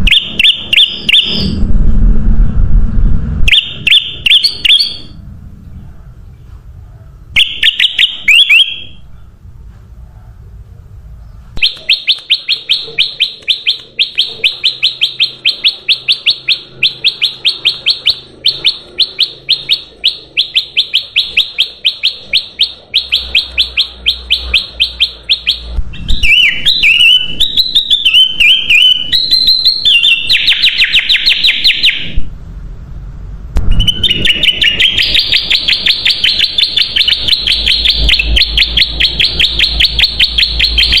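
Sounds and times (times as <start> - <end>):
bulbul chirping and chattering: 0.0 - 1.6, 3.5 - 5.2, 11.6 - 32.2, 33.7 - 41.0.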